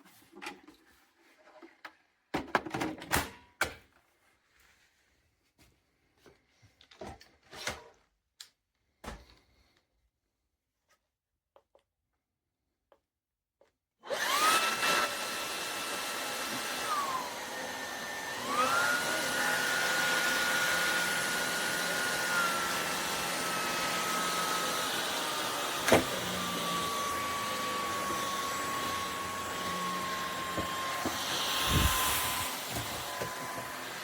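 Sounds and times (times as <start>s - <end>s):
vacuum motor whining: 14.1s - 34.0s.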